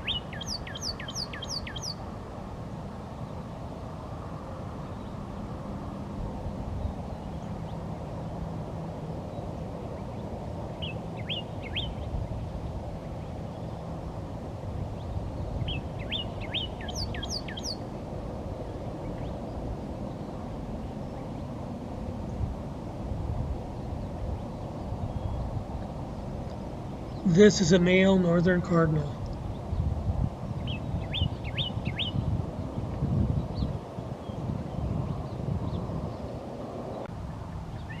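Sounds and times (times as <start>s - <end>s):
bird chirps and calls: 0.0s - 2.0s, 10.8s - 12.1s, 15.0s - 17.8s, 30.6s - 32.3s.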